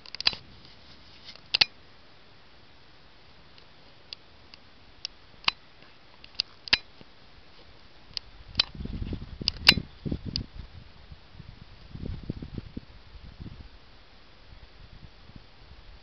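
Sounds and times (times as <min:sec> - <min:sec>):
sharp ticks: 0:06.2 - 0:06.9.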